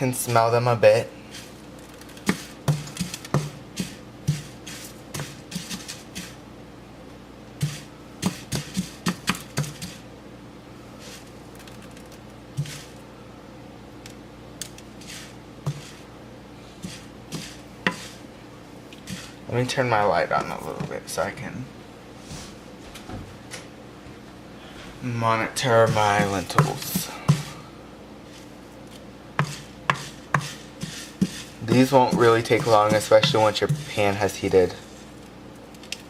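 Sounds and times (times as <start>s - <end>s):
steady low hum: 0.0s - 36.0s
utensil scraping against a pan: 1.3s - 6.4s, 7.6s - 10.0s, 12.6s - 13.0s, 15.0s - 16.1s, 16.7s - 18.2s, 19.0s - 19.4s, 25.6s - 27.6s, 29.4s - 35.2s.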